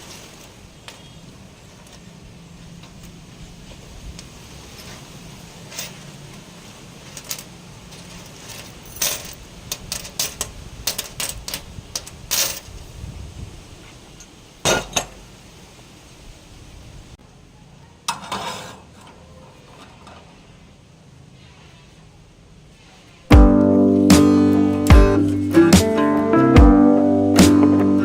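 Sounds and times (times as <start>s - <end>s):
metal pieces clinking: 4.7s - 12.7s.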